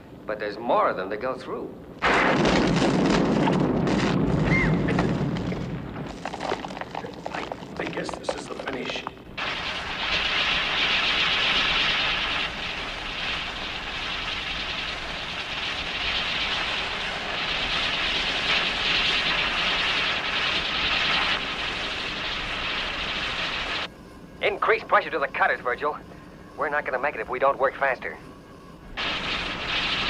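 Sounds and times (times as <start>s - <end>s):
gas cutting torch hissing: 4.5s - 26.7s, 28.6s - 30.0s.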